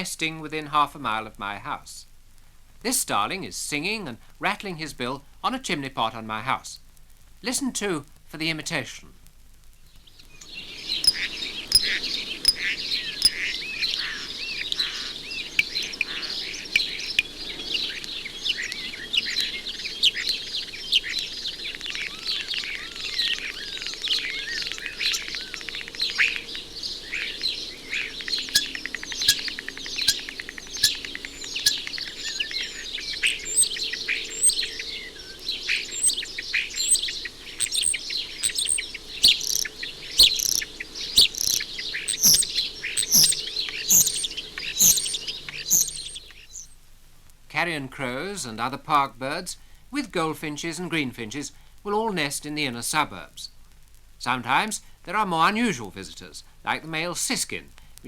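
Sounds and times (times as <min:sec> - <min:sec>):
starling singing: 0:10.4 - 0:46.8.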